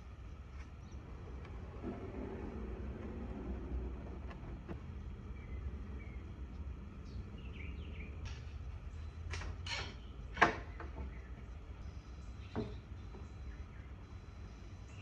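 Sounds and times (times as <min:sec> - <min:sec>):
steady low hum: 0:00.0 - 0:15.0
wooden drawer scraping: 0:01.1 - 0:06.2.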